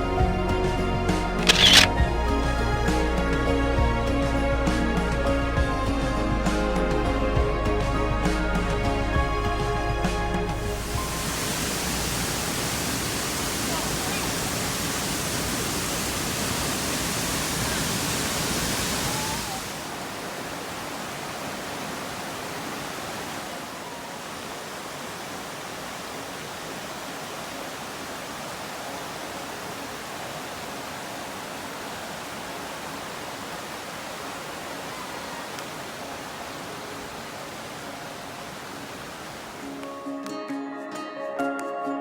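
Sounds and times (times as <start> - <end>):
waterfall roar: 10.6 - 39.7.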